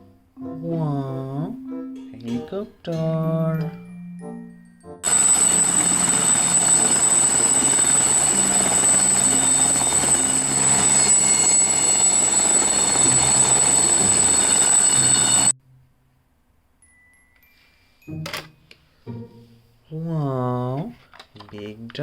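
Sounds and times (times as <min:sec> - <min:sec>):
helicopter rotor and engine whir: 0:05.0 - 0:15.5
high-pitched whine: 0:05.0 - 0:15.5.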